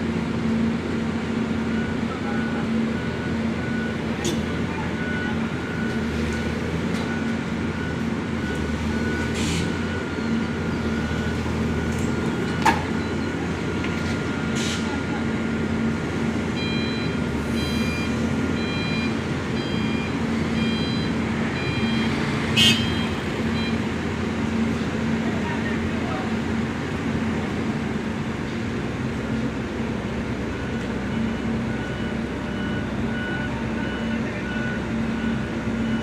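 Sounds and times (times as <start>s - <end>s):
diesel engine running: 0.0s - 36.0s
warning alarm beeping: 16.6s - 23.9s.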